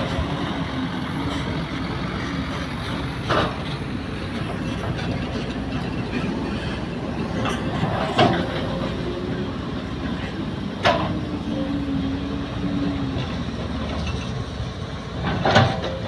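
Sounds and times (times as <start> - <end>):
excavator diesel rumble: 0.0 - 16.0.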